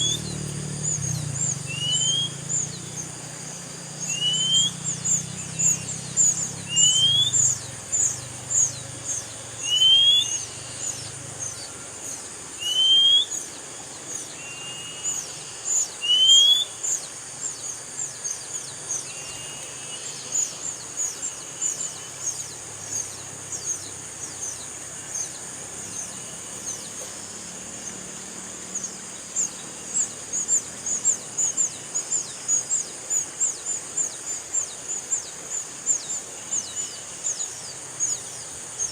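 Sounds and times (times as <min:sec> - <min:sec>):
steady high hiss: 0:00.0 - 0:38.9
bird rising whistle: 0:01.6 - 0:02.4, 0:04.1 - 0:05.0, 0:06.7 - 0:07.5, 0:09.6 - 0:10.5, 0:12.6 - 0:13.4, 0:16.0 - 0:16.8.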